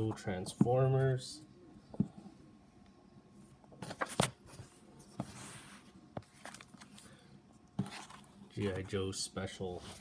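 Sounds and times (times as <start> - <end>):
paper rustling and sliding: 3.8 - 7.2.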